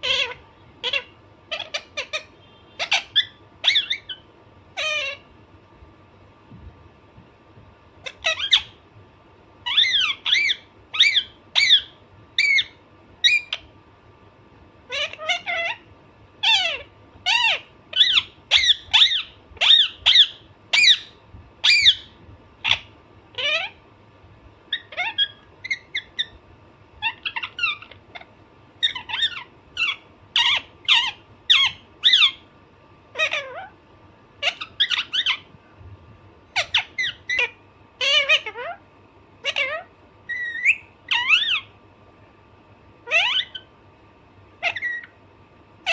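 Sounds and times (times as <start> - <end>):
parakeet squawking: 0.0 - 5.3, 8.0 - 8.8, 9.6 - 13.7, 14.9 - 23.8, 24.7 - 26.4, 27.0 - 32.5, 33.1 - 33.8, 34.4 - 35.5, 36.5 - 38.8, 39.4 - 41.8, 43.0 - 43.7, 44.6 - 45.2.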